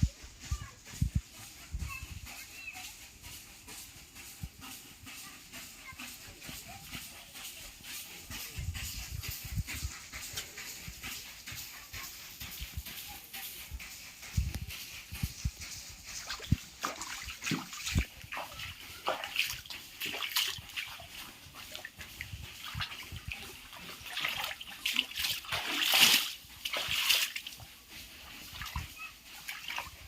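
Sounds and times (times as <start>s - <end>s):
water splashing and sloshing: 16.1s - 30.0s.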